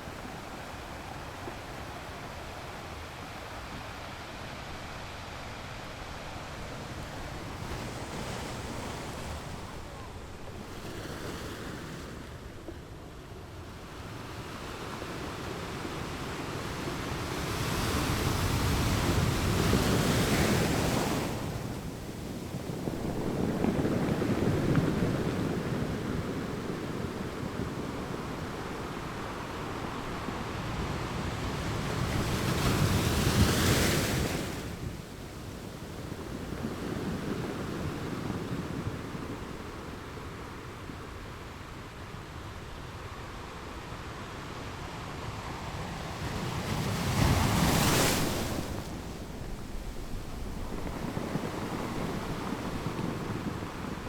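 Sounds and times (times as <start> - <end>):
waves breaking on rocks: 46.6 - 54.0.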